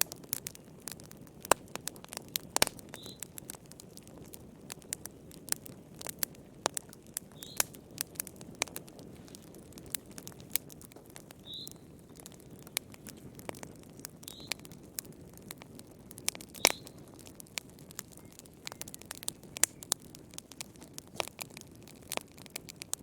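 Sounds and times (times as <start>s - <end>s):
wood fire crackling: 0.0s - 23.0s
faint high chirp: 3.0s - 3.2s, 11.4s - 11.8s, 14.3s - 14.6s.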